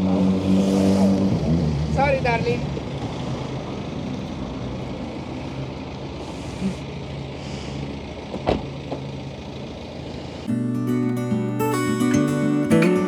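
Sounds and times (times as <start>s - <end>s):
motorcycle engine idling: 1.4s - 10.5s
acoustic guitar music: 10.5s - 13.0s.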